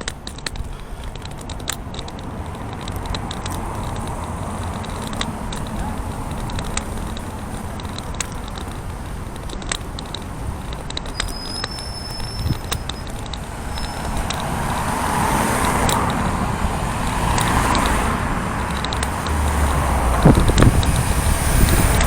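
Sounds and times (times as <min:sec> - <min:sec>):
cane tip clicking on pavement: 0:00.0 - 0:22.0
road traffic passing: 0:00.0 - 0:22.0.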